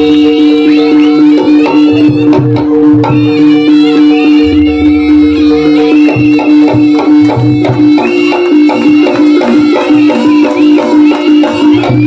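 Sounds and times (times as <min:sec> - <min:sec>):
bending wind instrument melody: 0:00.0 - 0:12.0
drum strokes: 0:02.0 - 0:12.0
steady held tone: 0:03.8 - 0:07.7
deep low tone: 0:04.4 - 0:06.2.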